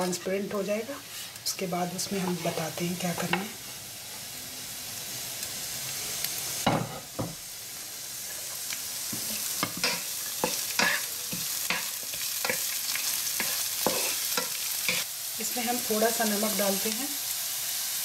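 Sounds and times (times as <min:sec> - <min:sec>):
onion sizzling in hot fat: 0:00.0 - 0:18.0
wooden spatula scraping pan: 0:02.0 - 0:03.6.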